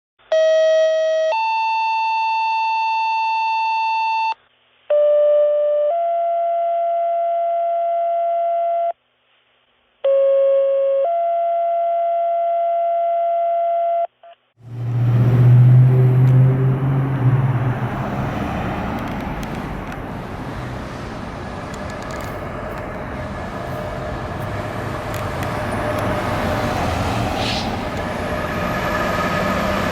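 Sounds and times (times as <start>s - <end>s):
road noise: 14.5s - 29.9s
heavy vehicle engine rumbling: 14.6s - 29.9s.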